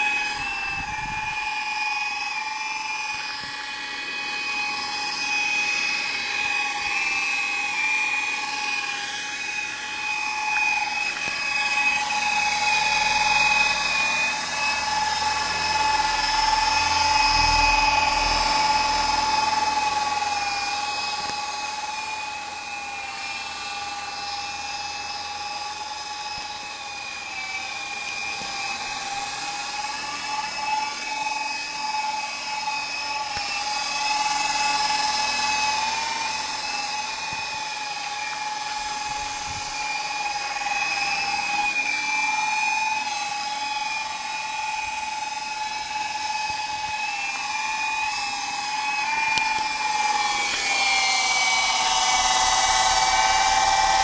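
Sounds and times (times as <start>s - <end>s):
rc helicopter motor whining: 0.0s - 54.0s.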